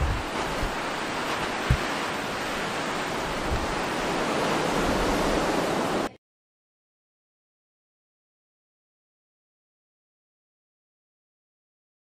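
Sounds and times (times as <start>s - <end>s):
blizzard wind rushing: 0.0s - 6.1s
wind gusts thumping microphone: 0.0s - 6.1s.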